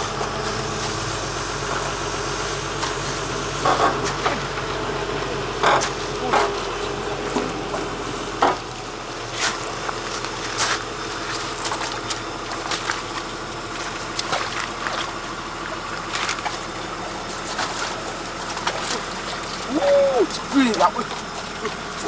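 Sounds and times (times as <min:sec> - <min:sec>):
excavator engine humming: 0:00.0 - 0:22.0
water sloshing and trickling: 0:00.0 - 0:22.0
short splashes: 0:00.2 - 0:22.0.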